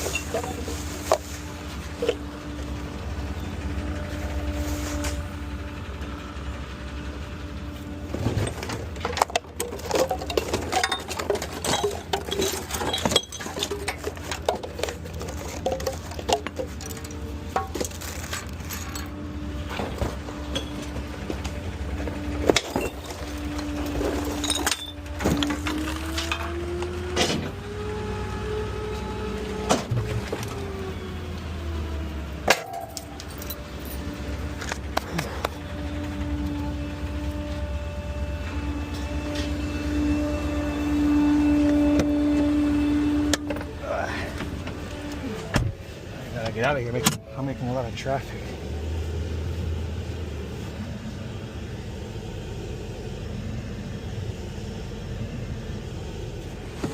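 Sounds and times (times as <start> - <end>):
trash clattering: 0.0 - 6.1, 7.6 - 27.6, 32.3 - 36.6
garbage truck engine idling: 0.0 - 56.9
glass bottles clinking and breaking: 8.4 - 19.1, 22.6 - 23.4, 24.1 - 25.9.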